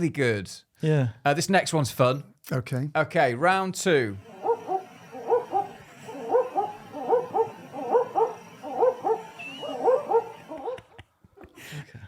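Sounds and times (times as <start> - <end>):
owl hooting: 4.3 - 10.8.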